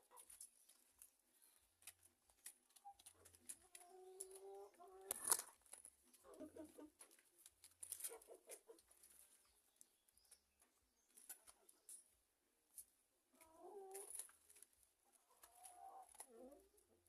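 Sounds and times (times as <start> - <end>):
chickens clucking: 0.0 - 1.0, 1.6 - 9.7, 13.2 - 17.0.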